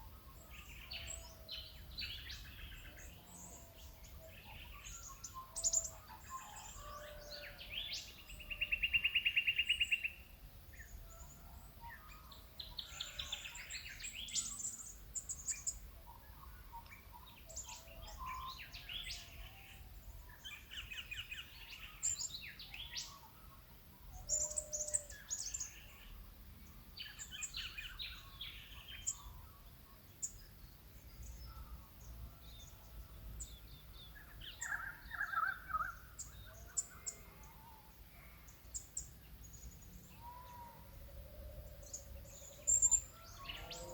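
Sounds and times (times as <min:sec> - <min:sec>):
birds chirping and calling: 0:24.2 - 0:26.0, 0:33.4 - 0:43.9.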